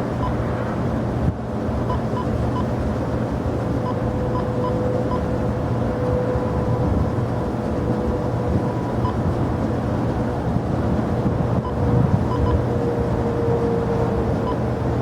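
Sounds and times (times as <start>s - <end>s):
jet engines rumbling and whining: 0.0s - 15.0s.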